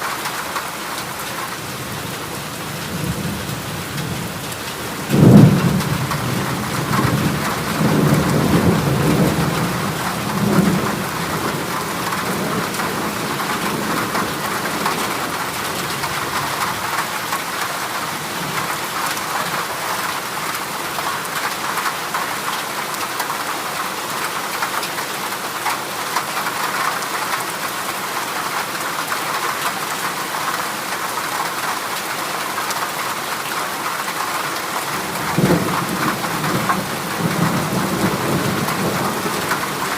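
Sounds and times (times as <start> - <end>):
heavy rain on a metal roof: 0.0 - 39.9
thunder clap and rumble: 5.0 - 17.5, 35.0 - 39.9.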